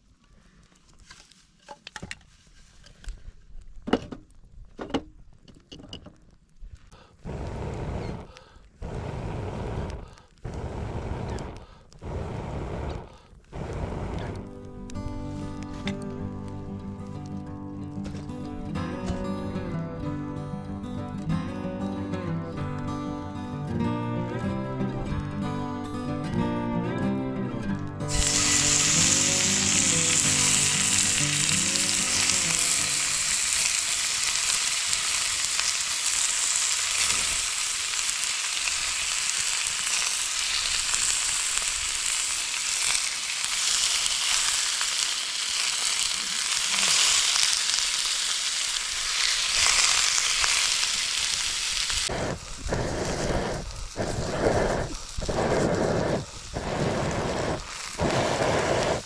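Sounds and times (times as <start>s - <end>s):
meat sizzling over campfire: 7.2s - 19.6s, 28.0s - 59.0s.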